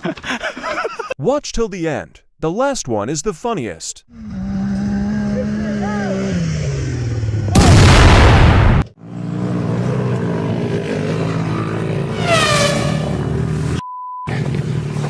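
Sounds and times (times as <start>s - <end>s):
motocross bike engine revving: 4.2s - 7.6s, 9.0s - 15.0s
dirt bike engine running: 9.0s - 15.0s.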